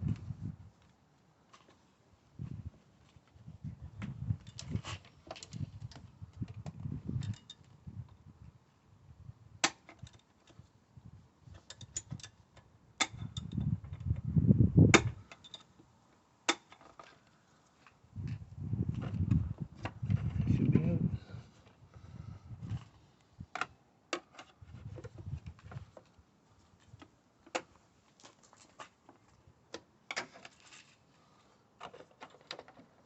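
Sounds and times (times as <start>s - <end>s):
rustling handling noise: 24.4s - 29.5s.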